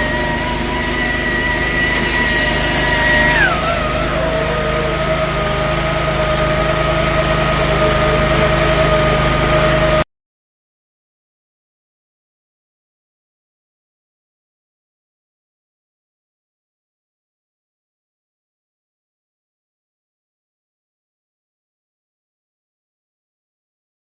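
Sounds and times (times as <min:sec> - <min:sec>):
small gas engine whining: 0:00.0 - 0:10.1.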